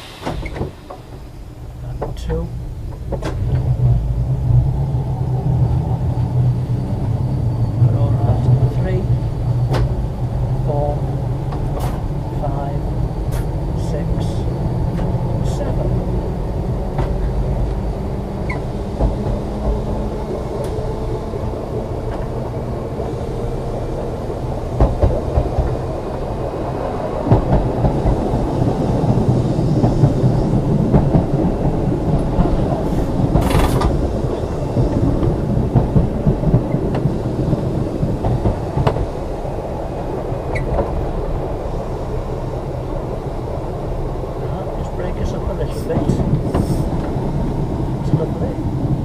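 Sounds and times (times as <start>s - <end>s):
short hiss: 0.0s - 1.0s
tram rumbling along track: 0.0s - 49.0s.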